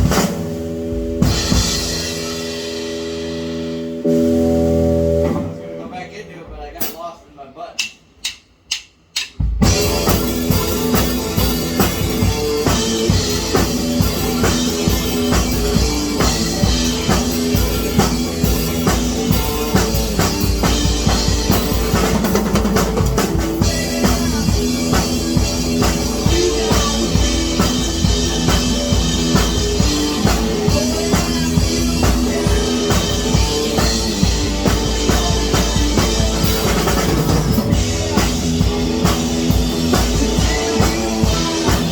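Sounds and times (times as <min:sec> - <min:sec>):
rock music: 0:00.0 - 0:41.9
sharp clicks: 0:07.8 - 0:09.4.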